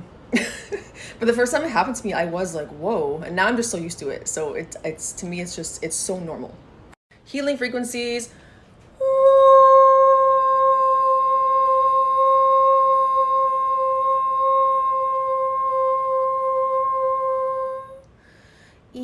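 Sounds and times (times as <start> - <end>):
woman holding high vocal tone: 9.0 - 18.0.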